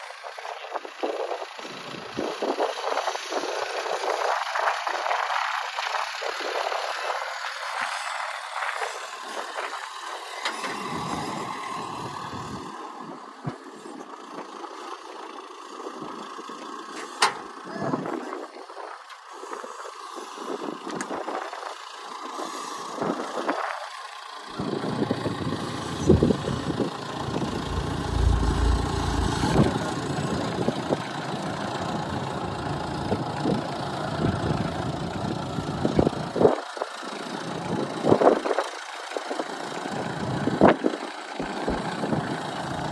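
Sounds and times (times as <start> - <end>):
vehicle engine running: 24.1 - 36.4
wind buffeting microphone: 24.6 - 31.0.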